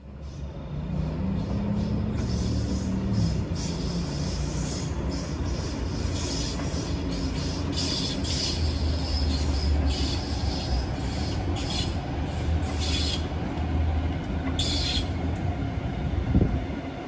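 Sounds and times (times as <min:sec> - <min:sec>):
train wheels rumbling on rail: 0:00.0 - 0:17.0
high-pitched wheel squeals: 0:01.5 - 0:12.0, 0:12.6 - 0:13.3, 0:14.6 - 0:15.2.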